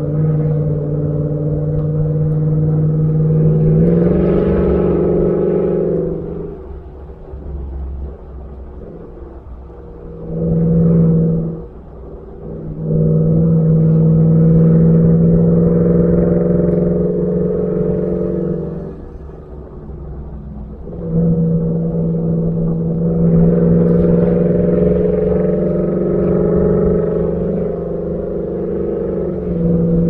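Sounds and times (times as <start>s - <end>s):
pickup truck engine revving: 0.0s - 30.0s.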